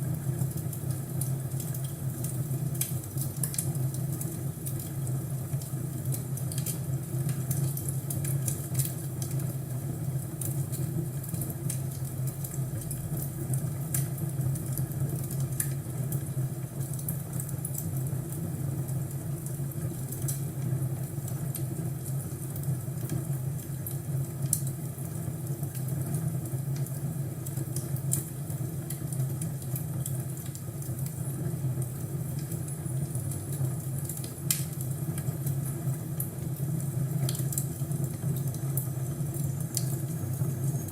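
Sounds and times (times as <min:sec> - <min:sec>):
wood fire crackling: 0:00.1 - 0:40.9.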